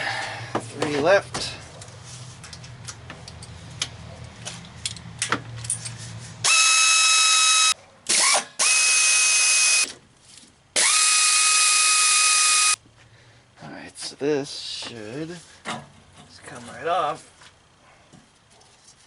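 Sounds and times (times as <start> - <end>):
cordless power tool whine: 6.5 - 9.9, 10.8 - 12.8.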